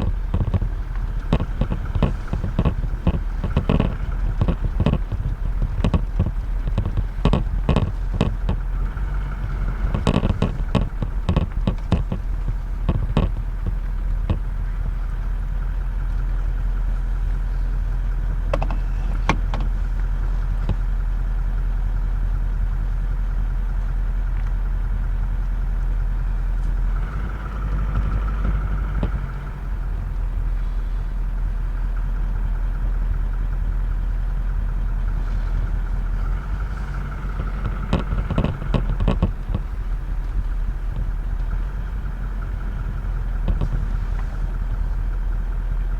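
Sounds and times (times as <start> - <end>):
sharp clicks and knocks: 0.0 - 15.2, 18.4 - 20.9, 26.6 - 30.3, 35.5 - 44.8
vehicle engine idling: 0.0 - 45.9.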